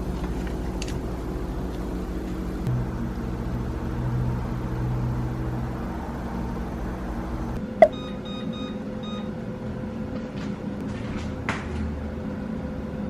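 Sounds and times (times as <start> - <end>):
air fryer fan hum: 0.0 - 7.4.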